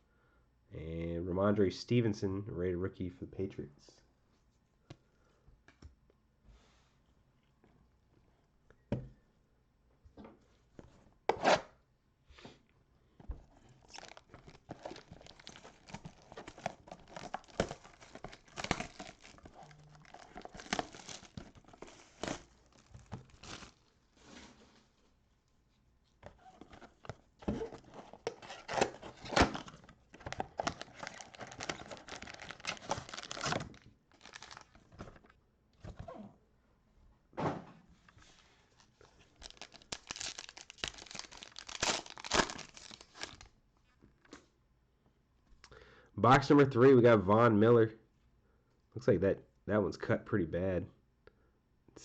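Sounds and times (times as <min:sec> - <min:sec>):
plastic wrapping tearing and crinkling: 0:13.6 - 0:23.9, 0:27.4 - 0:35.0, 0:39.3 - 0:43.5.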